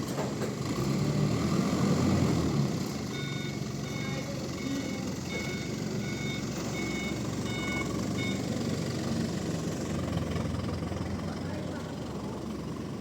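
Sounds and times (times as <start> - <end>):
low engine rumble: 1.9 - 13.0
reversing alarm beeping: 3.1 - 8.7.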